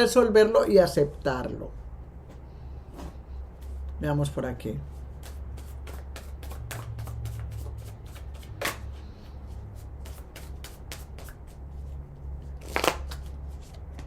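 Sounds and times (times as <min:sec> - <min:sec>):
cards being shuffled: 0:05.2 - 0:09.0, 0:10.0 - 0:14.0.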